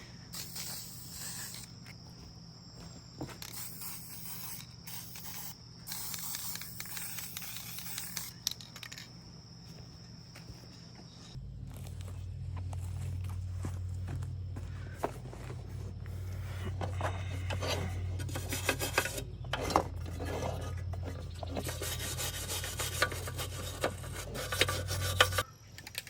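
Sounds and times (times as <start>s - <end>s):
bursts of hissing: 0.0s - 1.8s, 3.4s - 8.4s
small clicks and scrapes: 3.2s - 9.1s, 16.7s - 26.0s.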